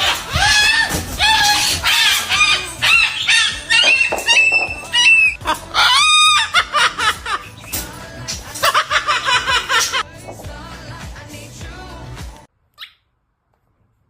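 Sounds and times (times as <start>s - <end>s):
bird squawking and honking: 0.0s - 6.6s.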